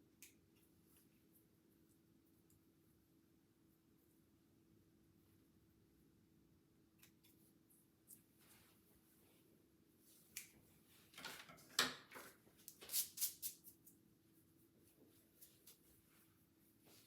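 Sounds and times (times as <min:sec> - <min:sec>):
scissors snipping hair: 0:10.3 - 0:10.6.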